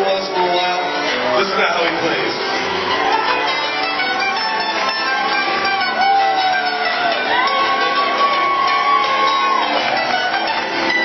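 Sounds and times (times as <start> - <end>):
live rock band playing: 0.0 - 11.0
long held sliding melody notes: 2.5 - 11.0.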